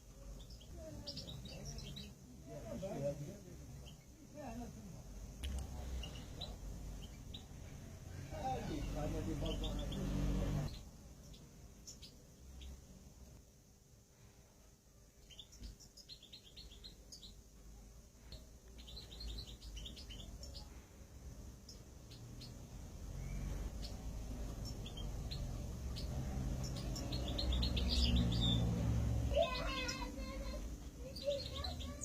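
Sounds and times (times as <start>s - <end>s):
cage birds chirping: 0.0s - 32.0s.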